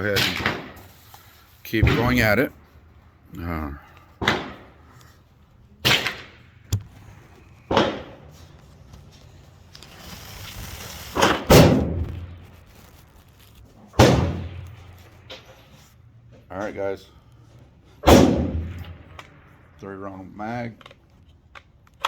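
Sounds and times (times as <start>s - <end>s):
rifle shots with ring: 14.0s - 14.7s, 18.0s - 19.4s.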